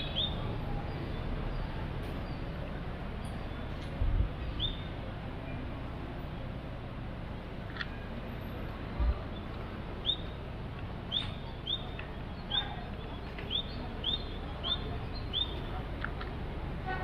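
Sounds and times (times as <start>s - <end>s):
small bird chirping: 9.3s - 10.4s, 11.1s - 15.7s.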